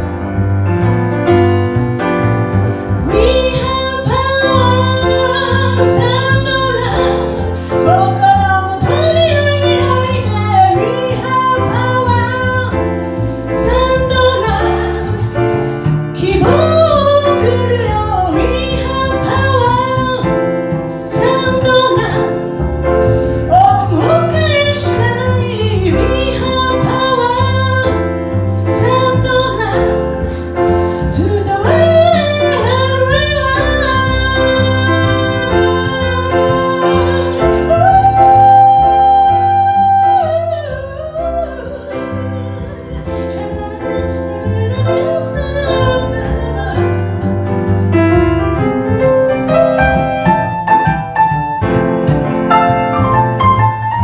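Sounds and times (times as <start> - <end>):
bass: 0.0 - 54.0
piano: 0.0 - 54.0
woman singing slow song: 3.0 - 12.8, 16.2 - 22.6, 23.5 - 28.1, 31.0 - 47.3.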